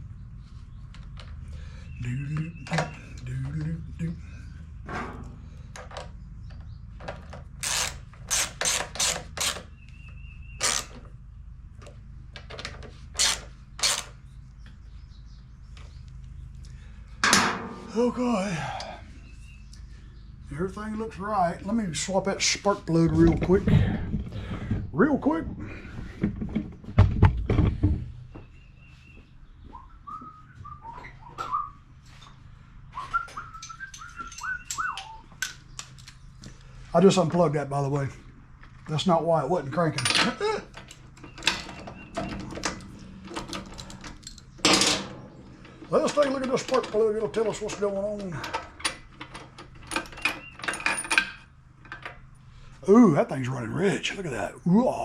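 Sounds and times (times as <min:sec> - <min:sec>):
hand ratchet clicking: 0:07.6 - 0:09.6.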